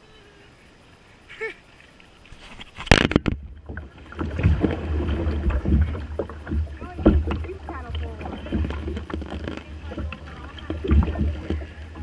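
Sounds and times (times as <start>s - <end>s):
paddle splashing water: 0.0s - 12.0s
water lapping: 0.0s - 12.0s
loud sudden splash: 2.8s - 11.6s
heavy low rumbling: 3.3s - 12.0s.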